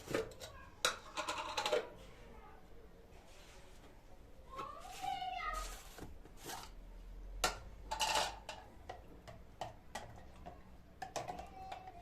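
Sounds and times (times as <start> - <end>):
kitchenware taps and clicks: 7.4 - 12.0.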